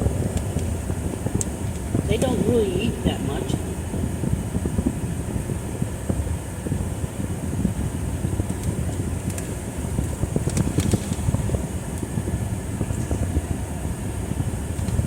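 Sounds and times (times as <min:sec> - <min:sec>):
air-conditioning blower: 0:00.0 - 0:15.0
car cabin rumble: 0:00.0 - 0:15.0
faint light ticks: 0:08.4 - 0:12.1.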